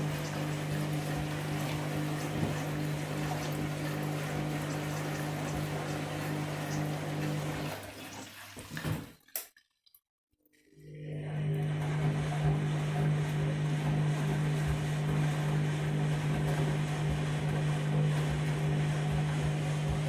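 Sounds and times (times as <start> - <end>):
washing machine humming: 0.0 - 9.3, 10.8 - 20.0
water sloshing: 0.0 - 9.7.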